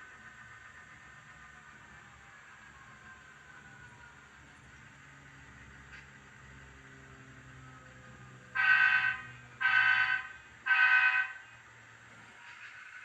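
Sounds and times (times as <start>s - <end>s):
low diesel engine rumble: 0.0s - 13.0s
locomotive horn blasts: 8.6s - 11.4s.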